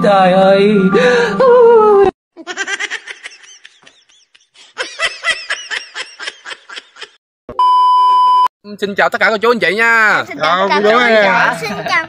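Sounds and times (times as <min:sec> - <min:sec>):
people laughing hard: 0:02.4 - 0:07.2.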